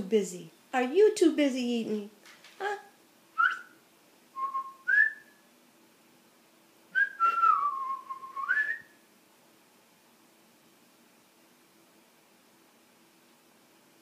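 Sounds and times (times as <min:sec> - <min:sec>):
person whistling: 0:03.4 - 0:03.7, 0:04.4 - 0:05.3, 0:07.0 - 0:08.9.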